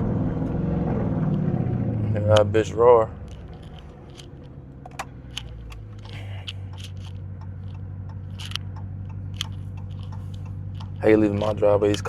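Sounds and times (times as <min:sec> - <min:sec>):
car engine idling: 0:00.0 - 0:12.0
light clicks and rattles: 0:03.2 - 0:12.0.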